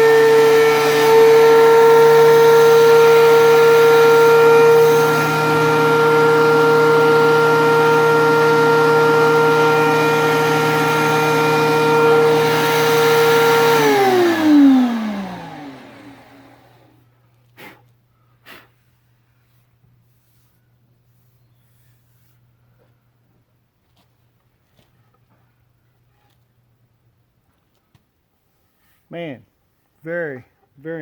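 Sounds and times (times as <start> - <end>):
planer whine winding down: 0.0 - 17.0.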